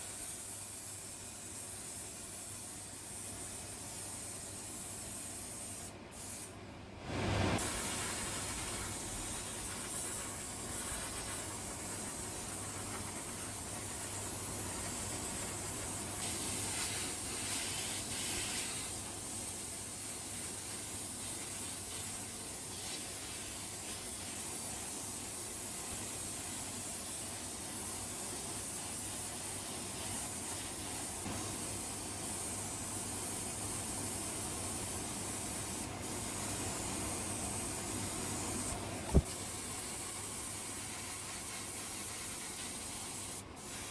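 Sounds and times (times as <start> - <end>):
compressed air spraying: 7.2 - 24.1, 34.0 - 43.9.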